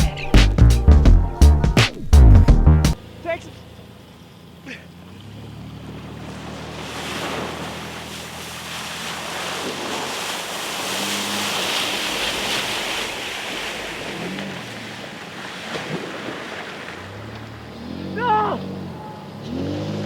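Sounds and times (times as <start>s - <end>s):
truck engine humming: 0.0s - 9.7s
rushing water spray: 5.8s - 17.1s.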